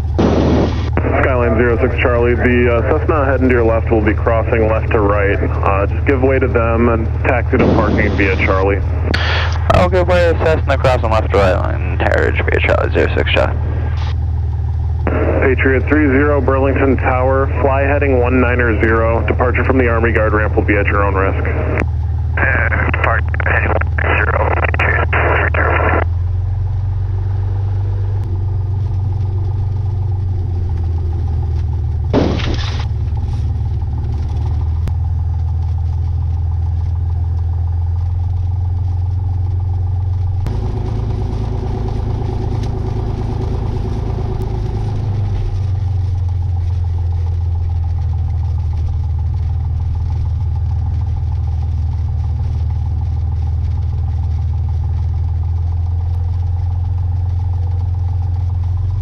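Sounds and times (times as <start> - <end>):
sharp crackle: 0.0 - 1.1, 7.3 - 9.7, 28.2 - 59.0
aircraft piston engine droning: 0.0 - 59.0.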